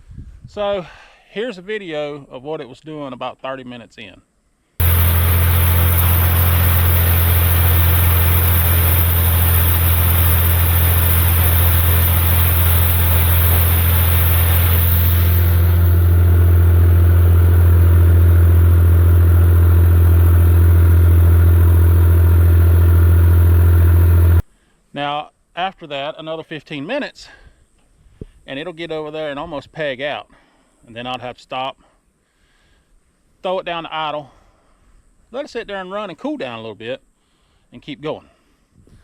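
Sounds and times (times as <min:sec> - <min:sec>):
high hiss: 0:04.8 - 0:24.4
tractor diesel engine running: 0:04.8 - 0:24.4.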